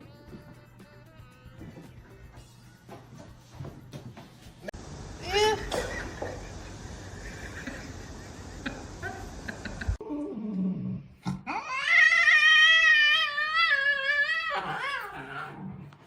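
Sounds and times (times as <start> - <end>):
cat yowling: 11.5 - 15.6.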